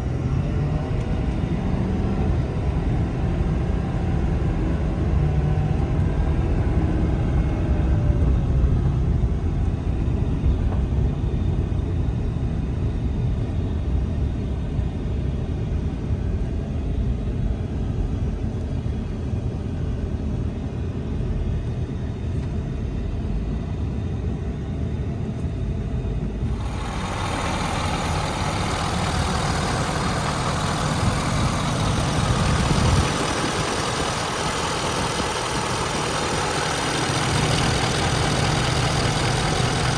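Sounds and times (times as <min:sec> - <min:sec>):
diesel engine rumbling: 0:26.3 - 0:39.9.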